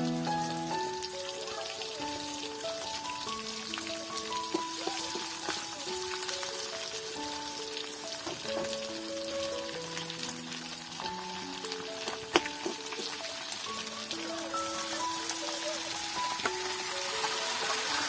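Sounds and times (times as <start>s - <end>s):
instrumental melody: 0.0s - 18.0s
onions sizzling in hot oil: 0.0s - 18.0s.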